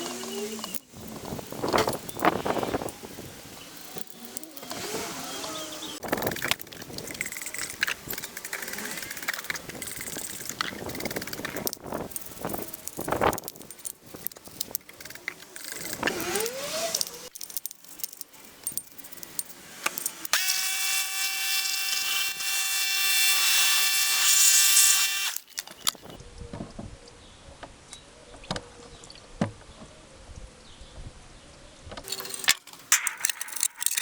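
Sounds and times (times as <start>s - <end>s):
power tool whine: 0.0s - 13.1s, 15.0s - 17.4s, 19.1s - 26.2s
metal parts and tools clinking: 0.0s - 26.2s, 32.0s - 34.0s.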